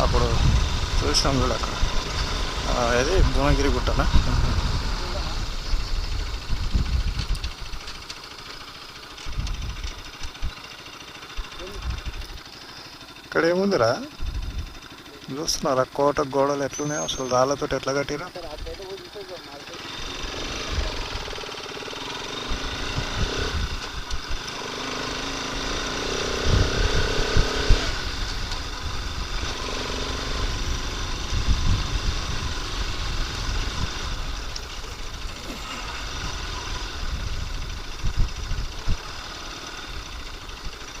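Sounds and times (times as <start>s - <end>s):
wind buffeting microphone: 0.0s - 7.8s, 22.7s - 24.3s, 30.3s - 35.2s, 36.1s - 39.1s
motorcycle engine running: 0.0s - 41.0s.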